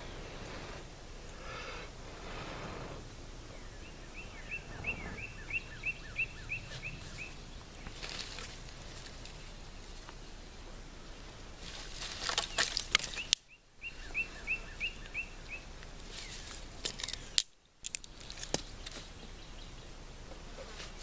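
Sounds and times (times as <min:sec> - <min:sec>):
rustling: 0:00.0 - 0:13.4, 0:15.8 - 0:19.3, 0:20.2 - 0:21.0
light outdoor hiss: 0:00.0 - 0:21.0
bird calling short sharp notes: 0:03.6 - 0:07.9.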